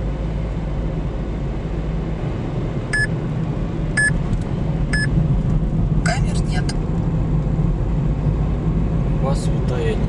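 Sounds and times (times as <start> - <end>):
car road and engine rumble: 0.0 - 10.0
short electronic beeps: 2.9 - 3.1, 4.9 - 5.1.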